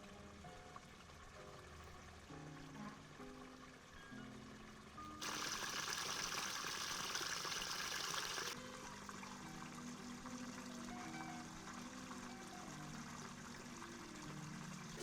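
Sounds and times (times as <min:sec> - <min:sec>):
water pouring: 0:05.2 - 0:09.1
water trickling: 0:05.2 - 0:10.8.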